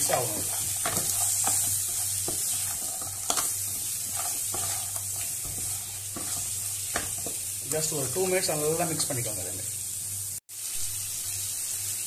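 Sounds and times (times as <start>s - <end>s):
spatula scraping a pan: 0.0s - 7.6s
crabs sizzling in a pan: 0.0s - 12.0s.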